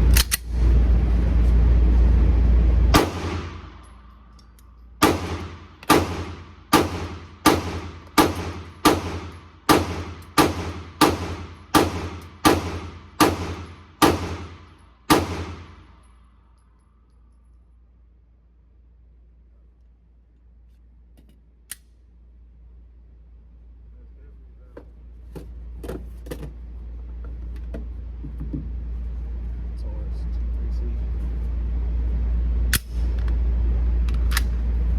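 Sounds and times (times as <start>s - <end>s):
loud low rumble: 0.0s - 15.8s
pistol shots echoing: 3.0s - 3.7s, 5.0s - 15.8s.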